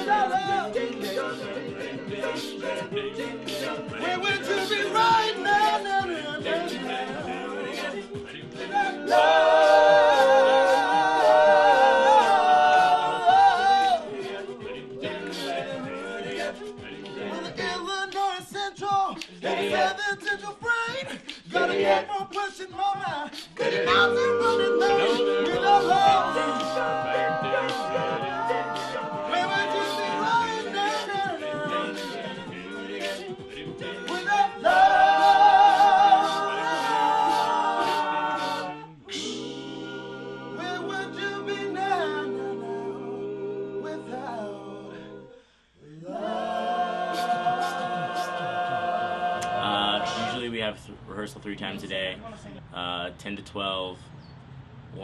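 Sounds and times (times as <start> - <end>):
men singing in close harmony: 0.0 - 50.5
lead voice singing high note: 23.6 - 30.5.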